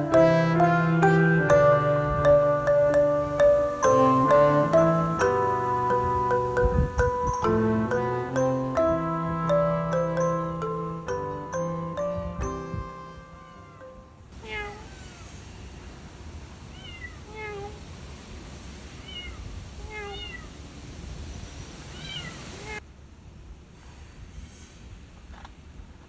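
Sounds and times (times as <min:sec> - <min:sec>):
glockenspiel-like music tune: 0:00.0 - 0:14.2
steady hiss: 0:14.9 - 0:26.0.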